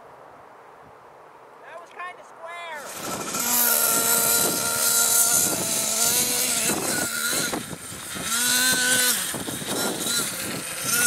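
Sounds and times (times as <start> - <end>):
hiss of wind and dirt: 0.0 - 11.0
small nitro engine revving: 2.8 - 11.0.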